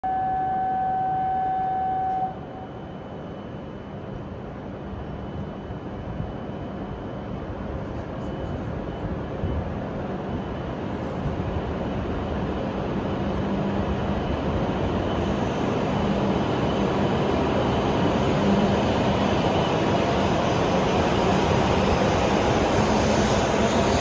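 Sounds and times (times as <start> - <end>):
train pulling out: 13.4 - 24.0.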